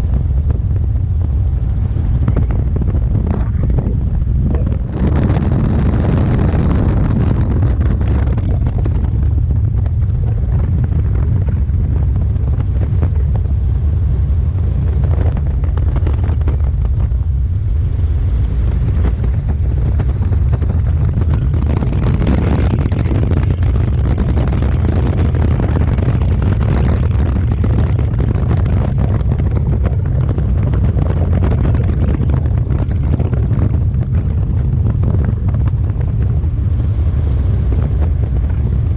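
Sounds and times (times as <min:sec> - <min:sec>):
helicopter rotor and engine rumble: 0:00.0 - 0:38.9
wind buffeting microphone: 0:00.0 - 0:38.9.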